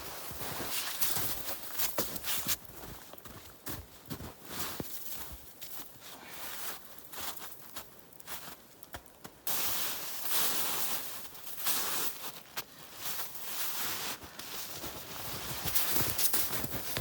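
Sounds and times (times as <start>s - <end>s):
footsteps crunching in snow: 0.0s - 17.0s
snow being handled: 9.5s - 17.0s.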